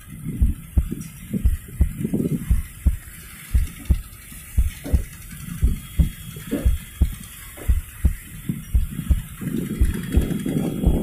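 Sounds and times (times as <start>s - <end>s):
moving train rumble: 0.0s - 11.0s
train wheels knocking on rail joints: 0.4s - 11.0s.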